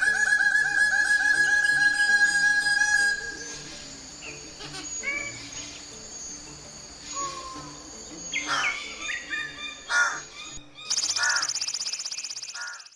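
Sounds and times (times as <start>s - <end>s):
birds chirping and whistling: 0.0s - 12.9s
high-pitched insect drone: 0.0s - 12.9s
rapid buzzing trill: 10.9s - 12.9s.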